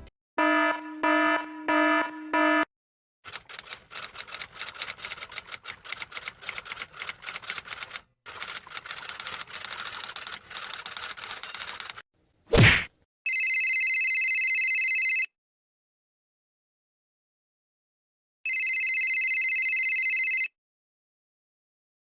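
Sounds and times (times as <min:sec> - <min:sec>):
rapid irregular clicking: 0:03.3 - 0:12.0.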